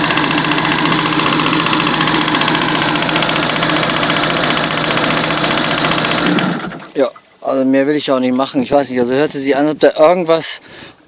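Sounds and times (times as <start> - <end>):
watercraft engine idling with clattering: 0.0 - 7.2.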